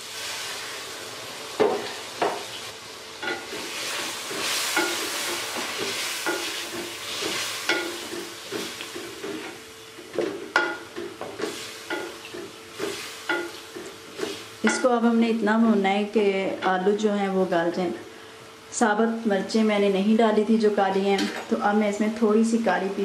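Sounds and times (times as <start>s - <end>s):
food sizzling in a pot: 0.0s - 15.2s.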